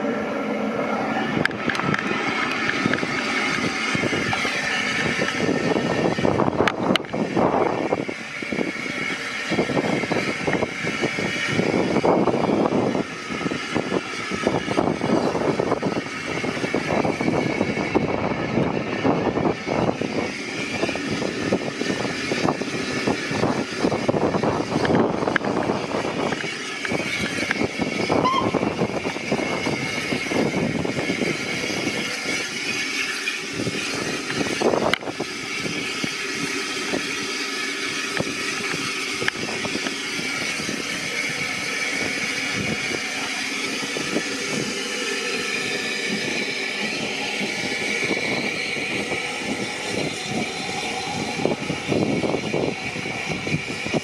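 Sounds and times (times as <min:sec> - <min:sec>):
train wheels clattering on track: 0:00.0 - 0:54.0
high ringing tone: 0:28.2 - 0:29.0.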